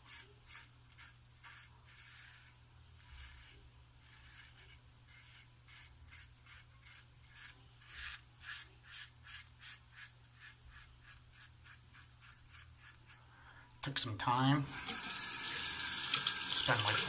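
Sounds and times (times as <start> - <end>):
razor scraping stubble: 0.0 - 13.2.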